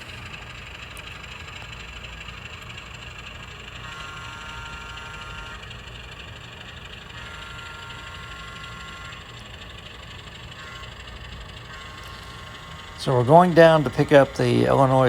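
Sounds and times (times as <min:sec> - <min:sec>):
diesel locomotive idling: 0:00.0 - 0:15.0.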